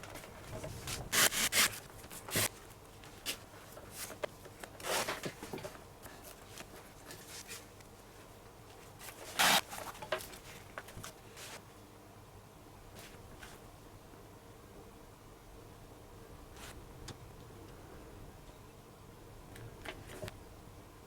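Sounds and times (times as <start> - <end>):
leather lace rasping through holes: 9.4 - 9.6.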